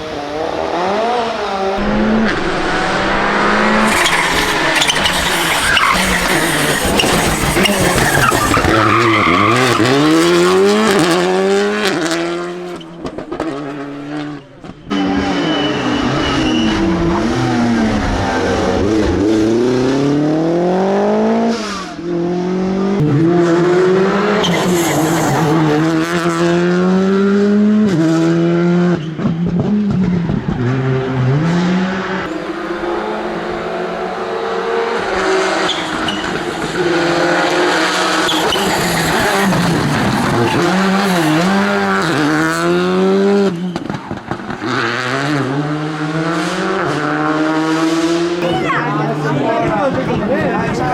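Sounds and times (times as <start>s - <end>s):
rally car engines revving high: 0.0s - 50.9s
tyre squeal: 1.8s - 10.6s, 14.8s - 17.8s, 35.4s - 42.5s.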